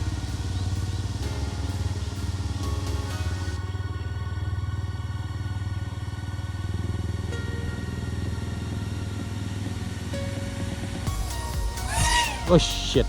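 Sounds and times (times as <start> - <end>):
quadcopter motors whining: 0.0 - 7.3, 11.2 - 13.0.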